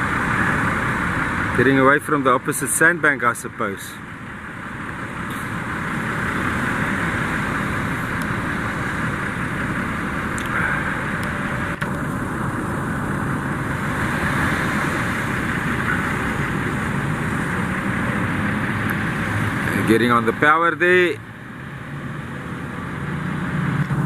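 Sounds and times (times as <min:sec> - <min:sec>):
outboard motors running: 0:00.0 - 0:24.0
steady rushing noise: 0:00.0 - 0:24.0.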